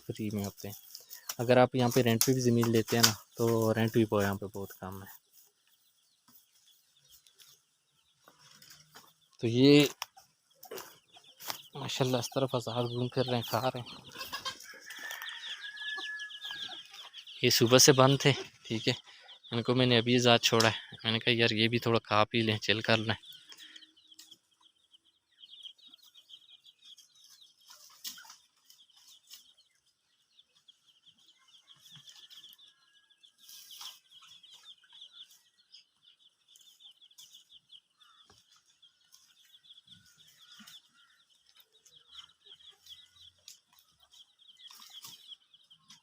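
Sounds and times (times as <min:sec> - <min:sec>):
chickens clucking softly: 0:00.0 - 0:24.8.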